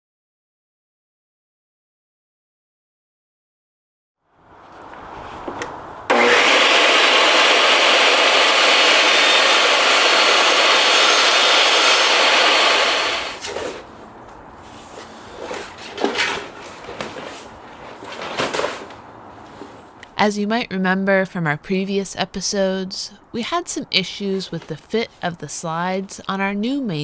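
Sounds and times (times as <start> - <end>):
table saw cutting: 6.1 - 13.6.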